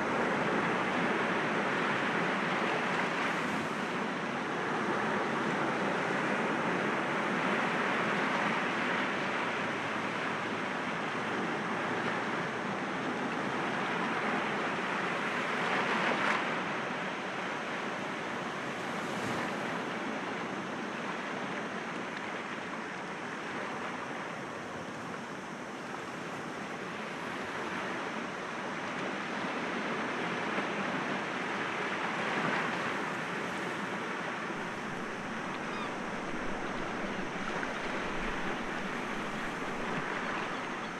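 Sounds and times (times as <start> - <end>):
sea waves breaking against rocks: 33.2 - 40.9.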